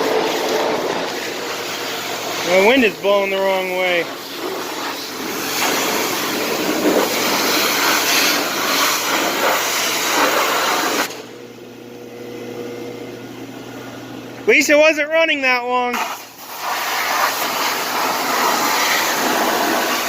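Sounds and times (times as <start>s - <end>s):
pressure washer water spray: 0.0s - 11.2s, 15.9s - 20.0s
pressure washer engine hum: 0.0s - 12.0s, 16.0s - 20.0s.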